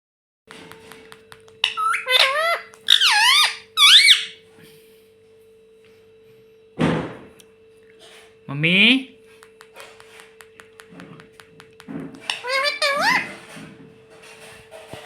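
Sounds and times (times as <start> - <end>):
parrot harsh squawk: 1.6 - 4.4, 12.2 - 13.4
parrot squeaky calls: 1.6 - 4.4, 12.2 - 13.4.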